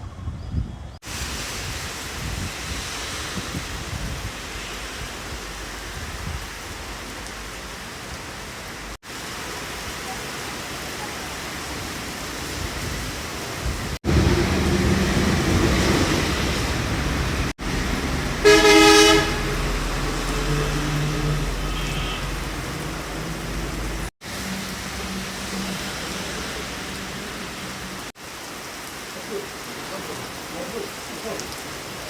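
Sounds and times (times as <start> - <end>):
rumble of road traffic: 0.0 - 32.0
heavy rain hissing: 1.0 - 32.0
vehicle horn honking: 18.4 - 19.7, 21.6 - 22.4.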